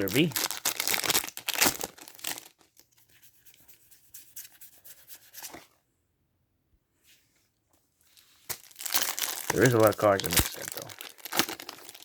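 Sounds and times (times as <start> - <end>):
foil wrapper crinkling and tearing: 0.0 - 2.9, 8.5 - 12.0
faint rustles of handling: 6.9 - 8.8.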